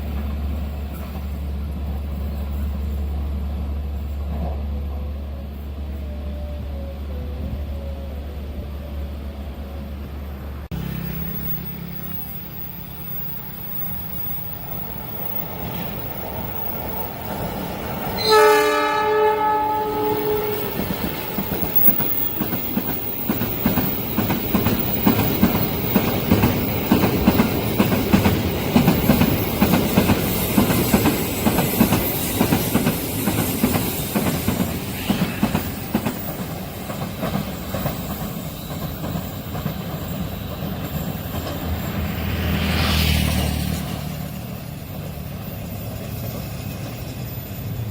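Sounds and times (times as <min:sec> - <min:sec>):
train horn: 0:04.7 - 0:09.6, 0:18.1 - 0:22.0
train wheels clattering: 0:12.7 - 0:47.9.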